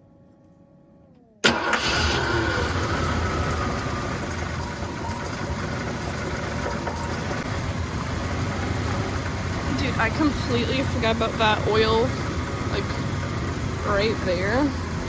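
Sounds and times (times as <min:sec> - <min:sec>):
engine starting and idling: 0:01.1 - 0:15.0
faint steady tones: 0:02.6 - 0:15.0.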